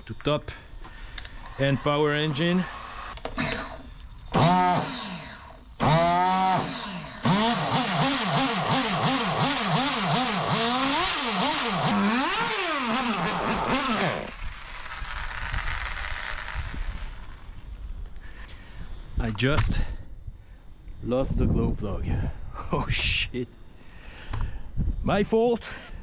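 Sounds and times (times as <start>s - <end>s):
model engine revving: 1.4s - 17.6s.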